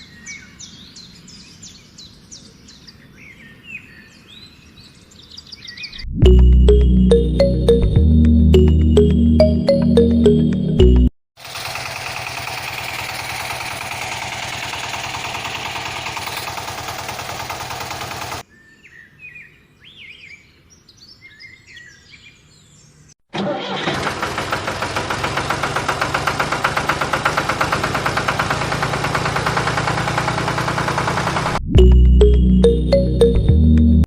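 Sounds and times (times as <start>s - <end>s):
birds chirping: 0.0s - 6.1s, 15.8s - 23.1s.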